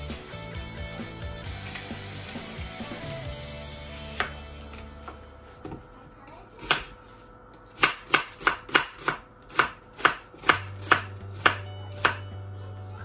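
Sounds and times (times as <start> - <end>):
knife chopping on cutting board: 6.6 - 7.0, 7.6 - 12.2.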